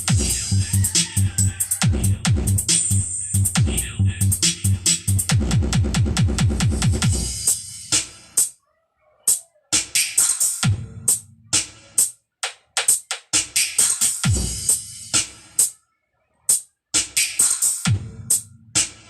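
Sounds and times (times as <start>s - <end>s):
drum machine hits: 0.0s - 8.5s.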